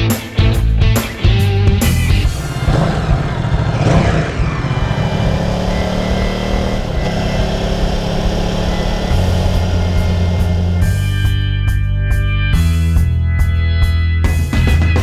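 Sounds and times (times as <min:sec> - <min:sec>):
motorcycle engine accelerating: 0:01.1 - 0:13.1.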